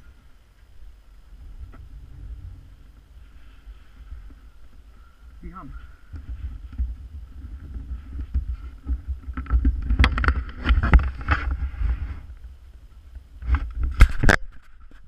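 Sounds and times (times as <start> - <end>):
wind buffeting microphone: 0.0 - 14.3
sharp knocks and rattles: 1.3 - 12.0.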